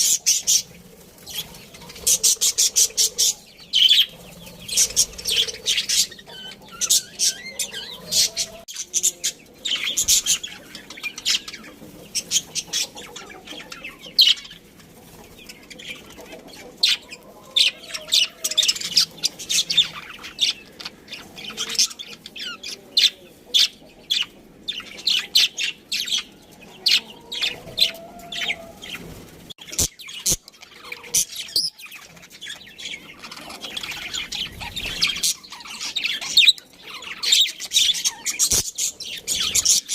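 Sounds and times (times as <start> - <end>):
budgerigars chirping: 0.0 - 14.6, 29.6 - 39.9.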